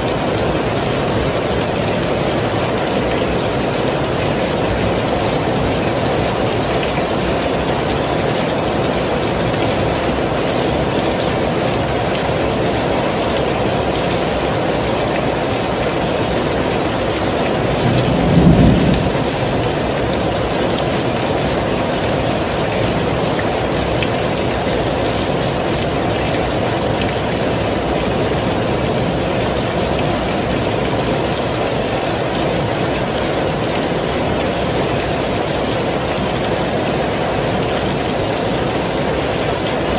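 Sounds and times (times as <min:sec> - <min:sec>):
heavy rain hissing: 0:00.0 - 0:39.9
low rumble of thunder: 0:17.6 - 0:20.6.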